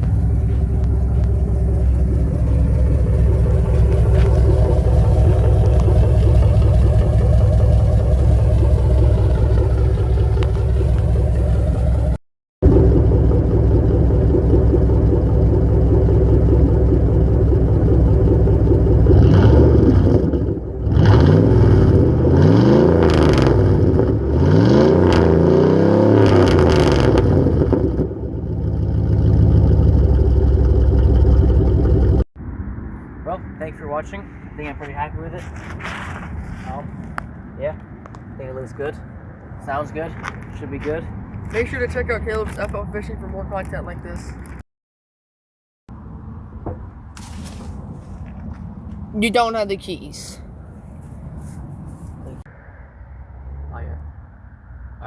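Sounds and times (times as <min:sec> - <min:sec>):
pickup engine revving: 0:00.0 - 0:32.2.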